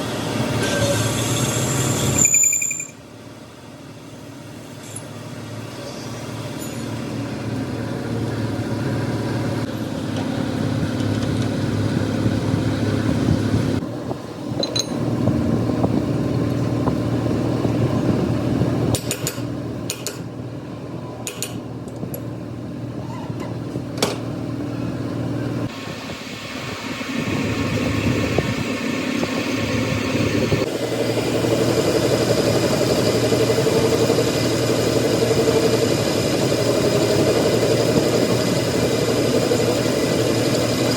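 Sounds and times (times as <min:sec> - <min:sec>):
heavy machinery running: 0:24.5 - 0:40.9.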